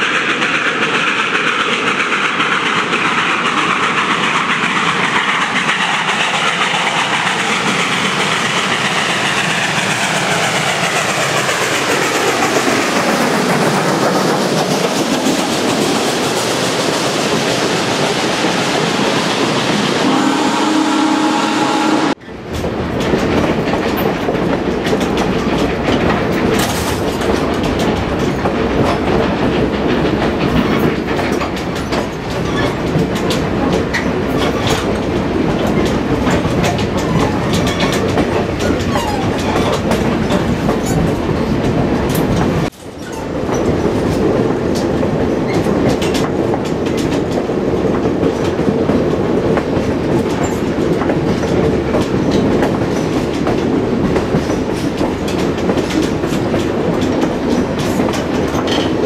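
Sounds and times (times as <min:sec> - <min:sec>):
train rumbling: 0:00.0 - 0:59.0
wheels clattering over rail joints: 0:22.2 - 0:59.0.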